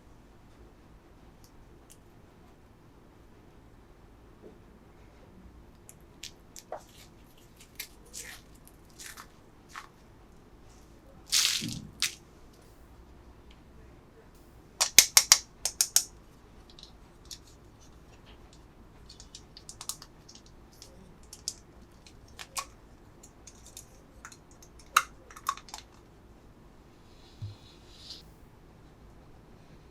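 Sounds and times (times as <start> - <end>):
plastic packaging crinkling: 6.6 - 9.9, 11.3 - 12.2, 16.6 - 26.0
plastic pieces clicking and tapping: 14.8 - 17.6, 18.2 - 26.0.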